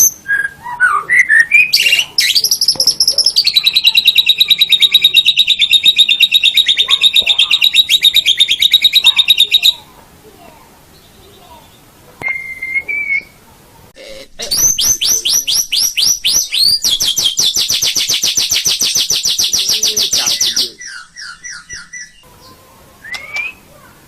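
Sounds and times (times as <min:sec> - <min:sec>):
songbird whistling and trilling: 0:00.0 - 0:09.8, 0:11.0 - 0:13.4, 0:14.6 - 0:23.7.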